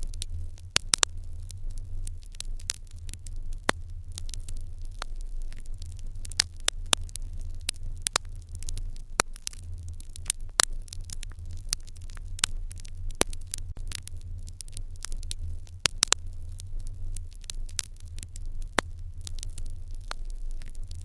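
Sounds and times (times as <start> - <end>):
fire crackling and popping: 0.0 - 21.0
low fire rumble: 0.0 - 21.0.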